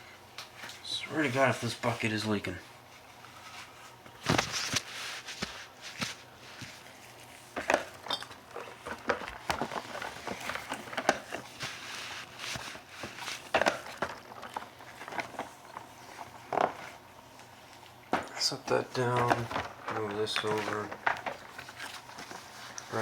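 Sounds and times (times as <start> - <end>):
rustling: 3.0 - 7.6, 8.7 - 17.0.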